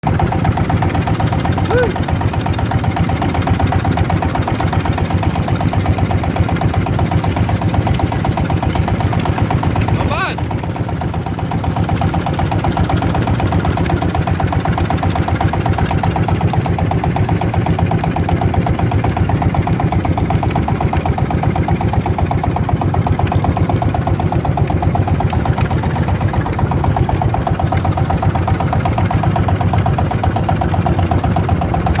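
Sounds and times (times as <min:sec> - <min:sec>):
small engine idling: 0:00.0 - 0:32.0.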